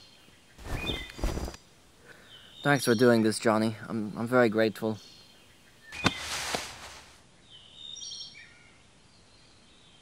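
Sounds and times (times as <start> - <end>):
bird chirps: 0.0 - 1.5, 5.0 - 9.4.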